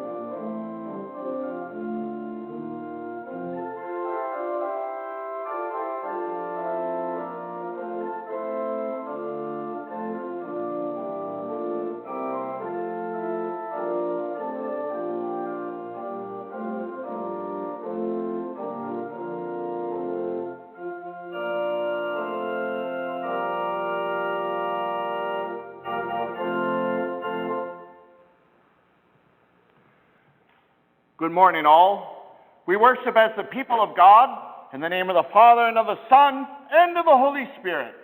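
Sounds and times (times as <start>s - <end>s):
organ chords: 0.0s - 28.5s.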